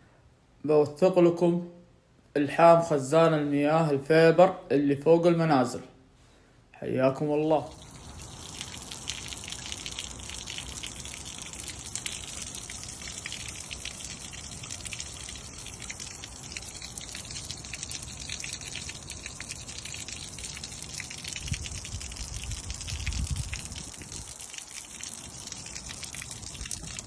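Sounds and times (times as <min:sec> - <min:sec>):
water splashing and trickling: 0:07.0 - 0:27.0.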